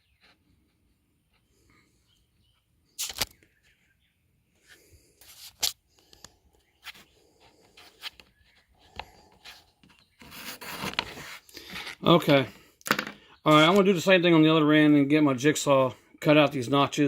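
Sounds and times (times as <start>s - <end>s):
pencil scraping on wood: 6.8s - 12.1s.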